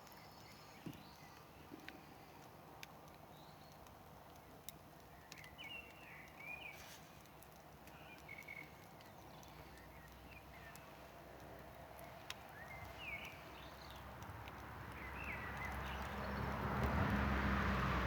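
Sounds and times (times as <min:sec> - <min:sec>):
birds chirping: 0:00.0 - 0:18.0
campfire crackling: 0:00.0 - 0:18.0.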